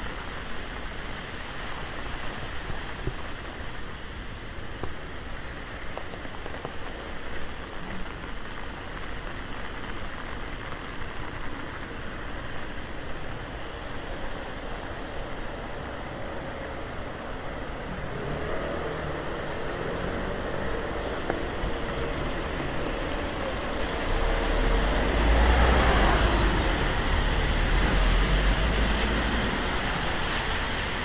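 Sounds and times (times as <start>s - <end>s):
raindrops ticking on surface: 0.0s - 31.0s
steady rain on street: 0.0s - 31.0s
passing vehicle engine: 17.9s - 31.0s.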